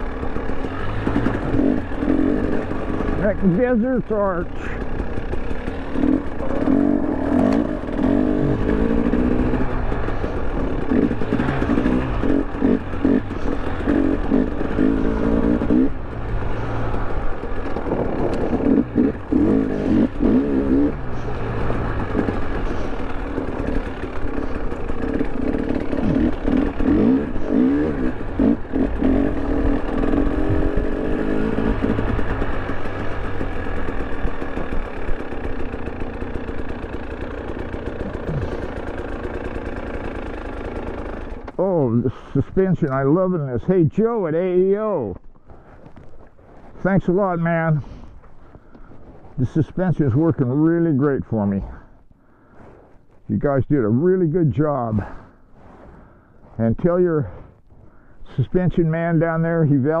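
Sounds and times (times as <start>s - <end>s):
clatter: 0.0s - 41.6s
two-stroke motorcycle engine revving: 0.0s - 45.2s.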